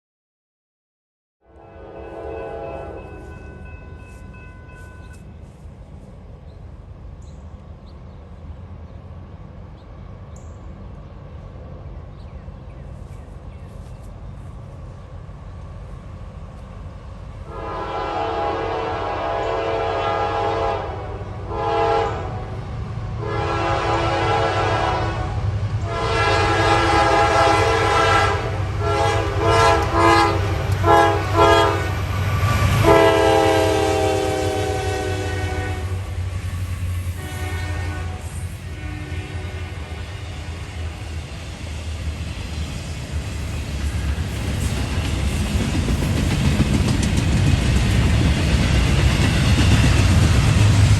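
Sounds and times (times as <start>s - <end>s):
locomotive air horn blasts: 1.4s - 5.1s, 17.5s - 22.6s, 23.2s - 36.2s, 37.2s - 40.6s
locomotive engine rumble: 1.7s - 50.9s.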